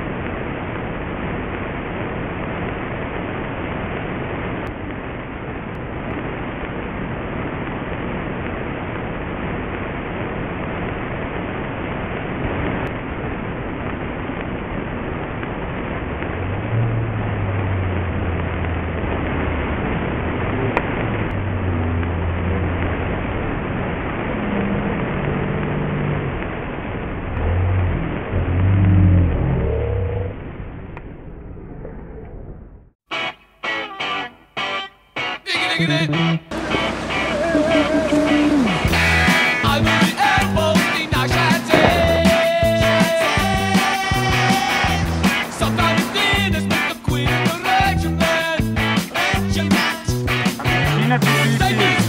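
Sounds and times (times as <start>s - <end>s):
steady rushing noise: 0.0s - 33.0s, 36.5s - 49.2s
car engine hum: 16.1s - 30.8s, 36.5s - 39.3s.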